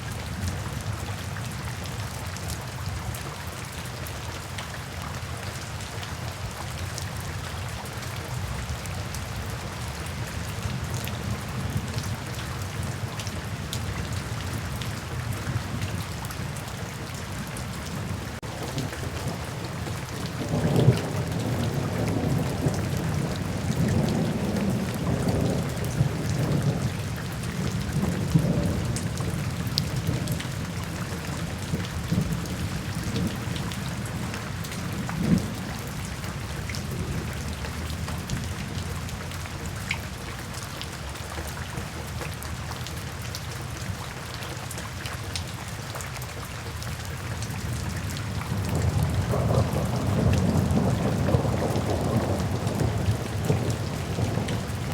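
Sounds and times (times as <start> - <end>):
steady rain: 0.0 - 54.9
rolling thunder: 48.2 - 54.9.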